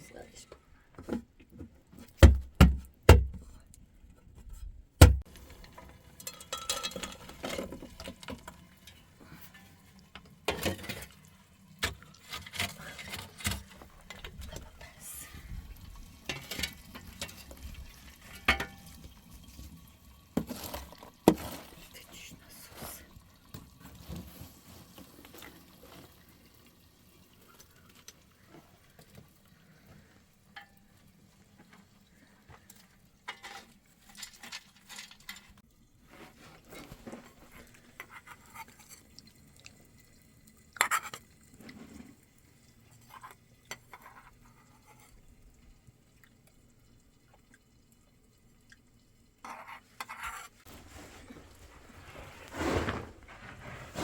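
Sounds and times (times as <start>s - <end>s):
clatter and handling sounds: 3.3s - 15.0s, 20.4s - 22.0s, 23.5s - 26.3s, 32.5s - 39.1s, 49.4s - 54.0s.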